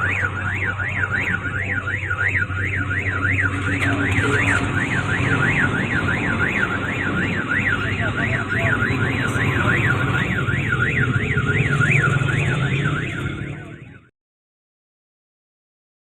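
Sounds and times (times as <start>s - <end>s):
electronic warbling alarm: 0.0s - 14.1s.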